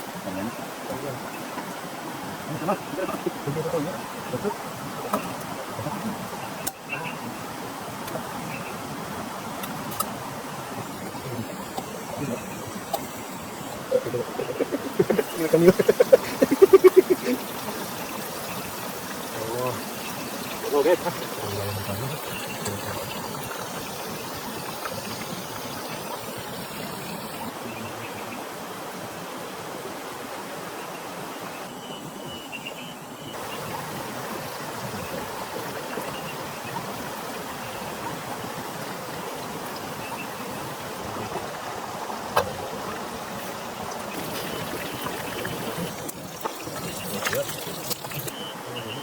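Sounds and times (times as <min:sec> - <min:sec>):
water trickling: 0:00.0 - 0:27.6, 0:33.3 - 0:49.0
rain falling: 0:10.8 - 0:27.5, 0:33.4 - 0:48.4.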